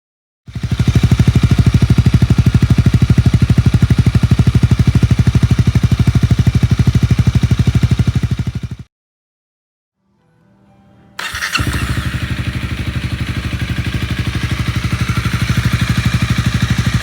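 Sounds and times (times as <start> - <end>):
motorcycle engine idling: 0.5 - 8.9, 11.2 - 17.0.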